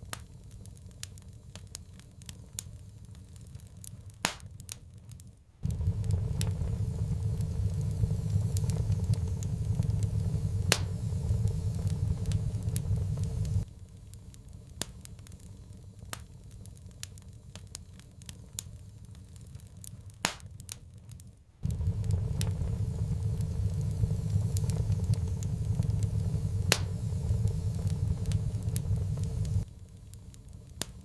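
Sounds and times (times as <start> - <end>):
sharp pops and snaps: 0.0 - 31.0
wood fire crackling: 0.0 - 31.0
low rumble: 5.6 - 13.7, 21.6 - 29.7.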